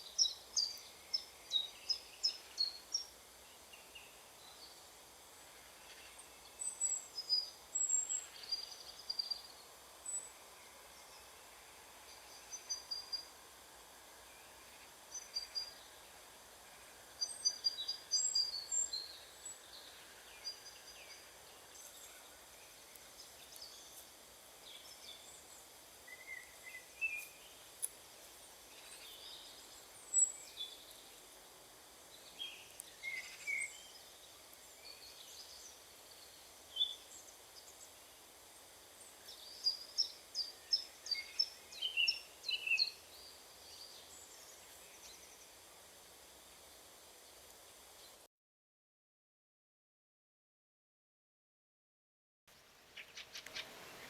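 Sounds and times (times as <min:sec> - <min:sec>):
small birds chirping and whistling: 0:00.0 - 0:03.1, 0:06.1 - 0:10.4, 0:12.1 - 0:13.3, 0:15.1 - 0:16.0, 0:17.2 - 0:24.0, 0:24.7 - 0:27.6, 0:28.7 - 0:31.2, 0:32.2 - 0:38.0, 0:39.0 - 0:45.5
faint background hiss: 0:00.0 - 0:48.3, 0:52.5 - 0:54.0.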